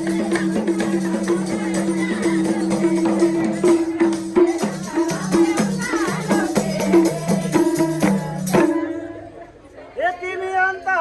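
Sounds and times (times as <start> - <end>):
hand drum and jingle beat: 0.0 - 9.4.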